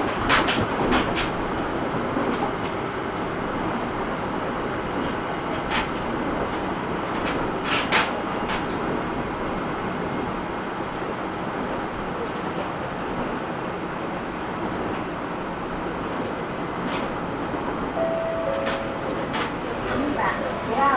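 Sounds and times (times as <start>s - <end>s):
train wheels rumbling on rails: 0.0s - 20.9s.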